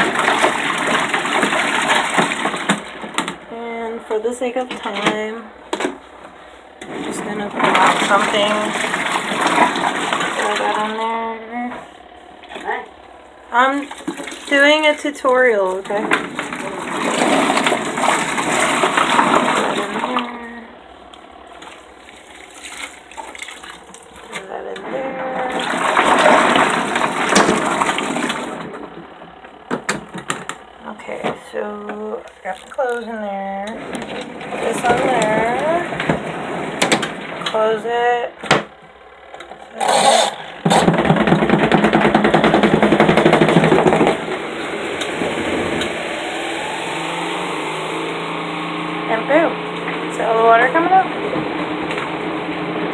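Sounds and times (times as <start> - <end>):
spin dryer motor whirring: 0.0 - 52.9
water running and splashing: 13.6 - 20.3, 21.5 - 24.4.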